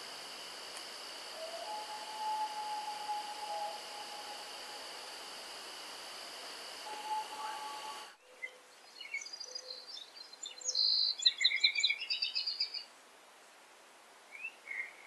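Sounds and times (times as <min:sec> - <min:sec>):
hiss: 0:00.0 - 0:08.2
steady high tone: 0:00.0 - 0:08.2
songbirds chirping and trilling: 0:06.6 - 0:12.9.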